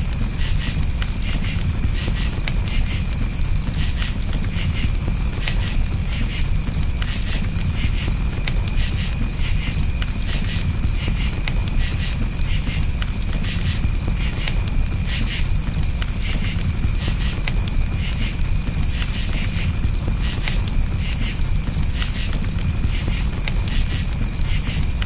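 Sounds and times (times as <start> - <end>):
crackling campfire: 0.0 - 25.0
crickets chirping: 0.0 - 25.0.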